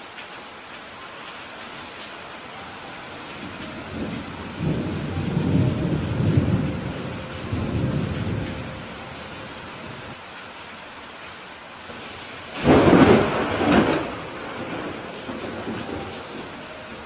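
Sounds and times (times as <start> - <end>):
steady rain falling: 0.0 - 17.0
rolling thunder: 3.4 - 10.2, 12.0 - 17.0.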